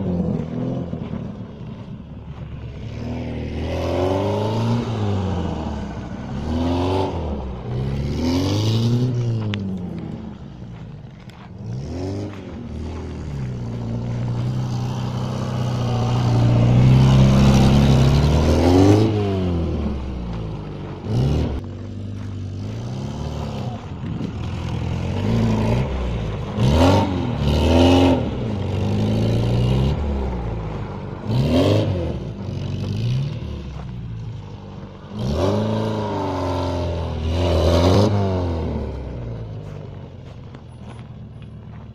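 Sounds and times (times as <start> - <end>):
car engine revving hard: 2.9 - 9.5, 14.1 - 20.1, 24.4 - 30.4, 31.2 - 33.7, 35.1 - 39.3.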